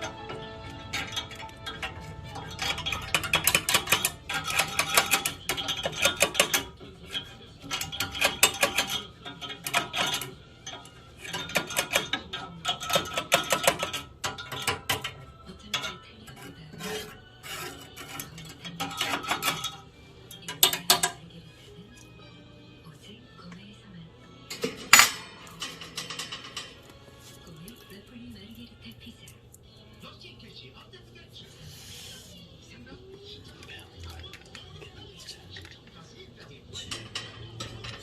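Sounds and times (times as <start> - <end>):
rapid clattering and rattling: 0.0 - 21.2, 24.5 - 27.0, 36.7 - 38.0.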